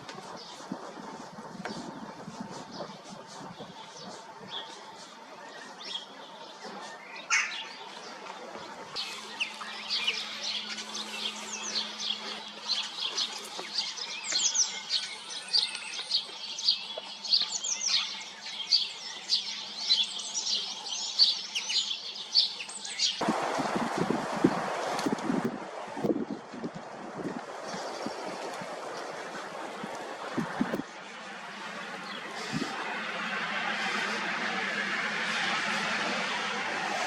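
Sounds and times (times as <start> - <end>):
wind noise on microphone: 0.0 - 5.3, 23.2 - 37.0
songbirds chirping: 0.0 - 23.8, 25.8 - 37.0.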